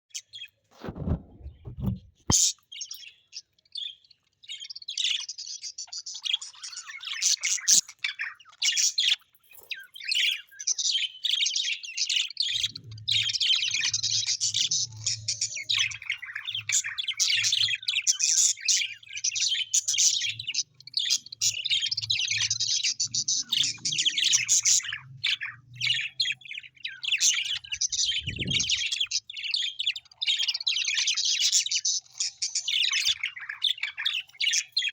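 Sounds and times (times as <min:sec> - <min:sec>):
parrots chirping and twittering: 0:00.1 - 0:34.9
low thump: 0:00.9 - 0:02.3.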